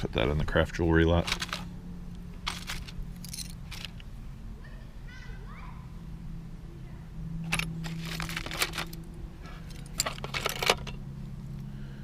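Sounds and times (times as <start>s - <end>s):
low steady hum: 0.0s - 12.0s
metal jewelry clinking: 2.4s - 4.1s, 7.4s - 11.0s.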